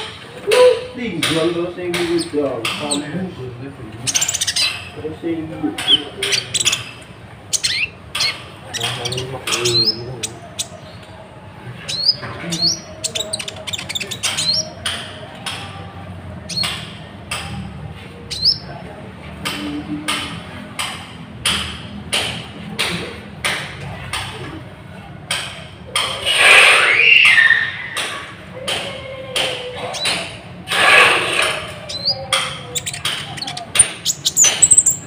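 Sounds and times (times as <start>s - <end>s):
bird squawks and chirps: 4.1s - 5.0s, 5.8s - 10.8s, 11.9s - 15.0s, 18.3s - 18.7s, 26.0s - 28.8s, 29.4s - 35.0s.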